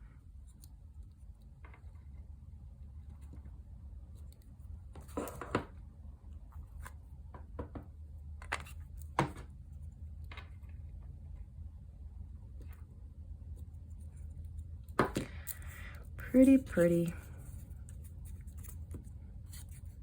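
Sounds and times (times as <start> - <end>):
paper rustling: 15.4 - 20.0.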